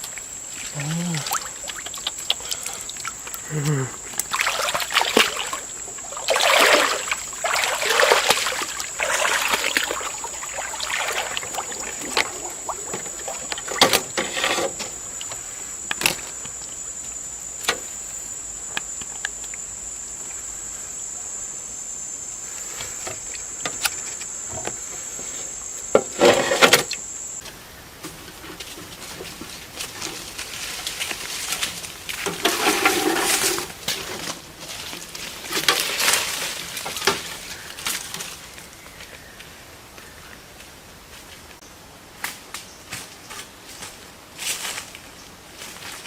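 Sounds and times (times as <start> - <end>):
water splashing and sloshing: 0.0 - 16.2, 28.2 - 38.8.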